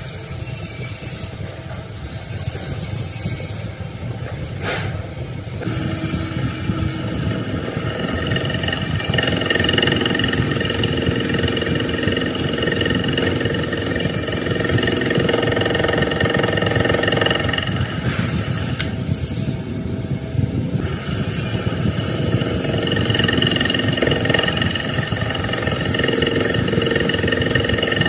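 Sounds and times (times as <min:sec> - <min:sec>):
truck engine rumbling: 0:05.6 - 0:28.0.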